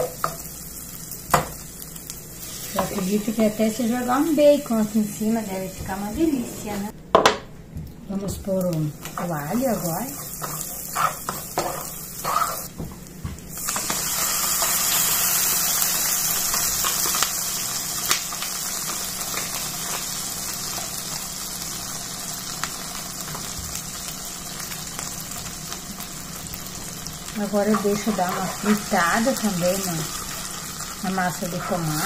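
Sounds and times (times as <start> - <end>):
bacon frying in a pot: 0.0 - 6.9, 8.3 - 32.0
loud sizzle: 0.0 - 7.0, 8.3 - 32.0
spatula stirring in a pot: 9.2 - 12.7, 27.7 - 28.9, 31.4 - 32.0.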